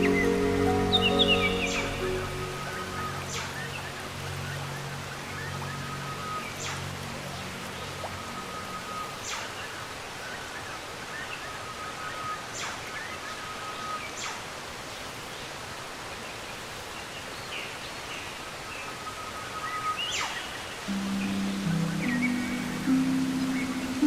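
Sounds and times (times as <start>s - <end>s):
steady outdoor hiss: 0.0s - 24.0s
birds calling: 20.9s - 24.0s.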